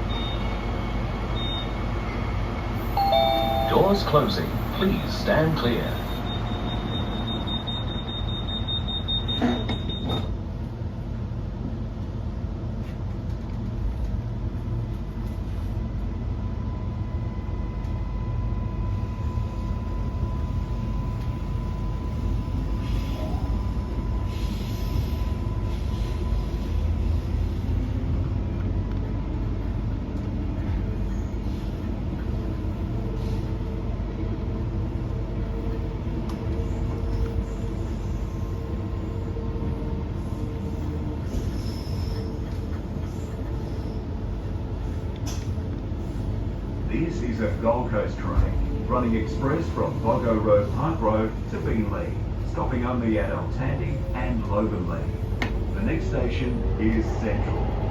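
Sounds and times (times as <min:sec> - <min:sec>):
train running rumble: 0:00.0 - 0:57.9
door-closing warning beeps: 0:00.1 - 0:00.6, 0:01.4 - 0:01.8, 0:03.0 - 0:04.2, 0:05.6 - 0:10.4
train doors knocking shut: 0:09.3 - 0:10.4.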